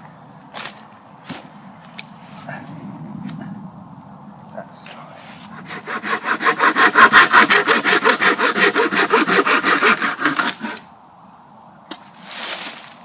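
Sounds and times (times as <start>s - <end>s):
hand saw cutting wood: 5.5s - 10.9s.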